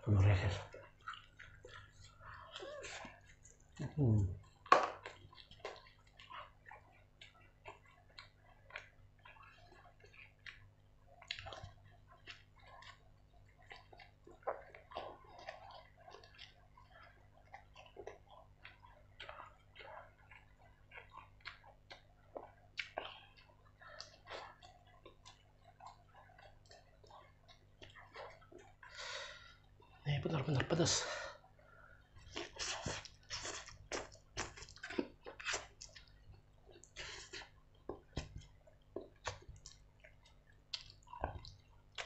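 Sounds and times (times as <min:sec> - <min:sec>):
man chewing food: 0:00.0 - 0:42.0
wet lip smacks: 0:36.8 - 0:42.0.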